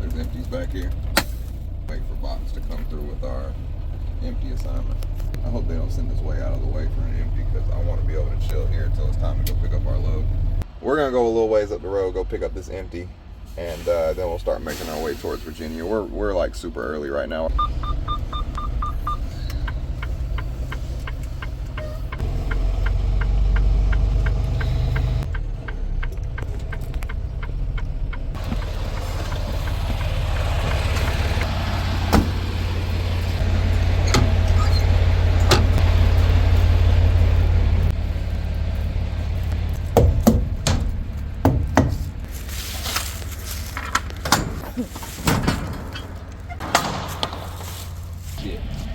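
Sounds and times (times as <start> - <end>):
diesel truck engine running: 0.0 - 14.6, 16.2 - 48.9
even ticking: 17.5 - 32.4
sharp knocks: 39.9 - 42.2.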